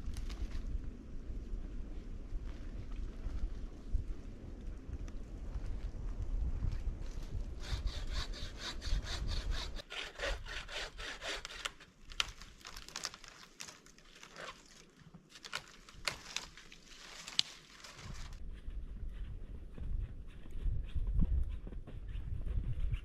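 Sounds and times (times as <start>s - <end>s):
low wind rumble: 0.0s - 12.2s, 18.0s - 23.0s
hand saw cutting wood: 7.6s - 11.9s.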